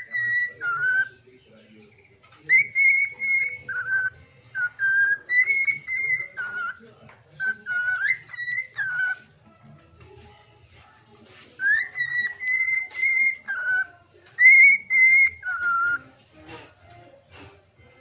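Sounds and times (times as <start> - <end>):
bird whistling a tune: 0.0 - 1.2, 2.5 - 6.8, 7.4 - 9.3, 11.6 - 16.2.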